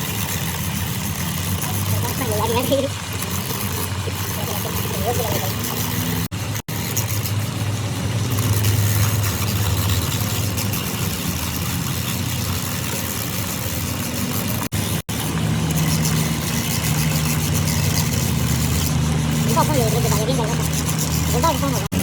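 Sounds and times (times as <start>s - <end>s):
engine humming: 14.2s - 22.0s.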